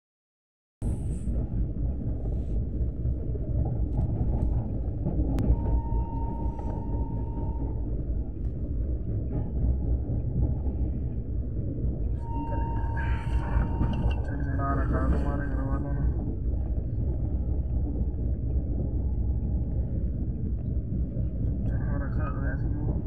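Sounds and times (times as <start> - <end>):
train rumbling on rails: 0.8 - 23.0
faint thin whine: 5.4 - 7.9, 12.2 - 16.1.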